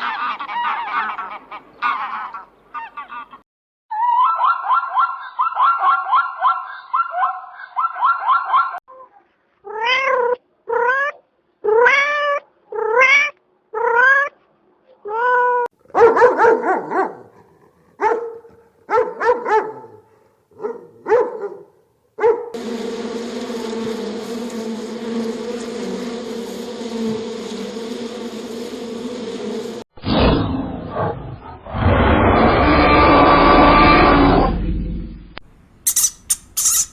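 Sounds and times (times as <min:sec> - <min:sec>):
cat meowing: 0:09.7 - 0:14.3
insect buzzing: 0:22.6 - 0:29.8, 0:35.9 - 0:36.9.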